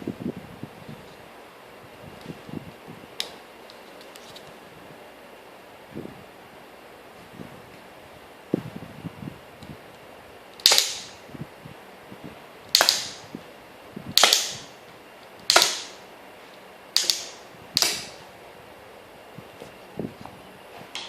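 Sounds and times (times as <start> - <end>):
rubber-band pistol sharp cracks: 10.6 - 11.2, 12.7 - 13.2, 14.2 - 14.7, 15.5 - 16.0, 17.0 - 18.2.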